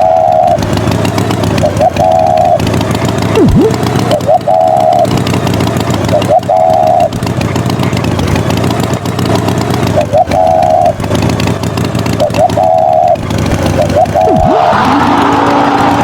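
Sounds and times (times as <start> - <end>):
engine rumbling: 0.0 - 16.0
rising chirp: 3.4 - 5.1, 6.2 - 7.1, 10.1 - 10.9, 12.4 - 13.2.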